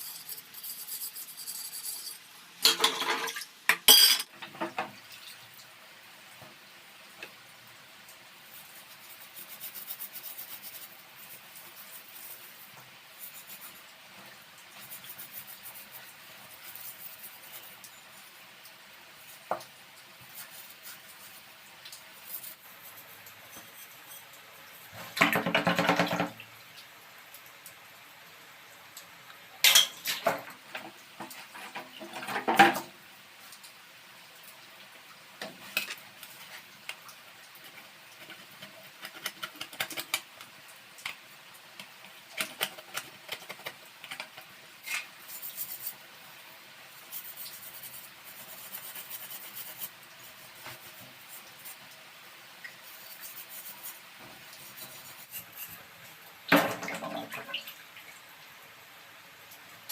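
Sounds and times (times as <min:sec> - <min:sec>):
metal clinking on metal: 0:02.6 - 0:04.3.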